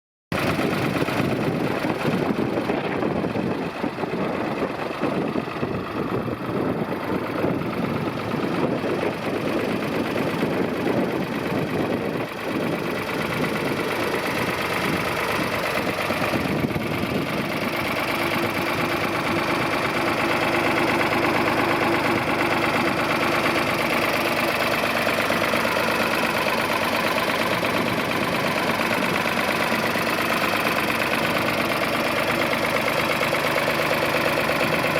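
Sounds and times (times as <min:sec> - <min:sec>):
tractor engine running: 0:00.3 - 0:34.9.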